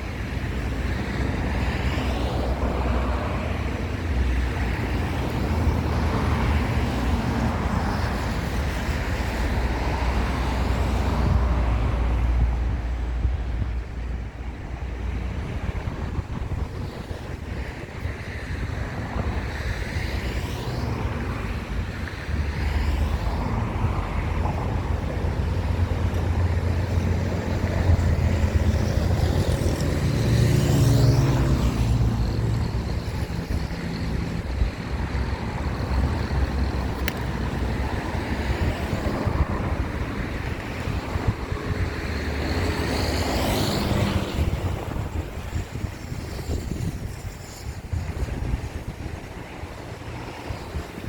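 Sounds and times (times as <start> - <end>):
road traffic passing: 0.0 - 51.0.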